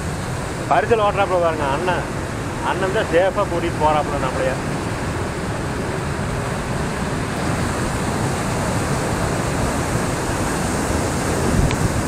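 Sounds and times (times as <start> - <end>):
river water and waterfall rushing: 0.0 - 12.0
wind noise on microphone: 4.6 - 12.0.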